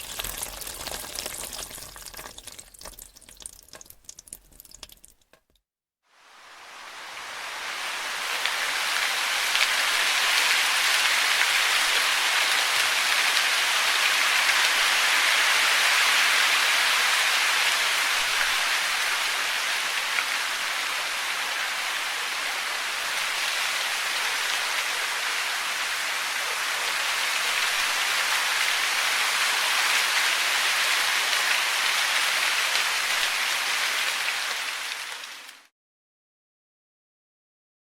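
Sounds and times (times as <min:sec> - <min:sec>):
rushing water hiss: 0:06.2 - 0:35.7.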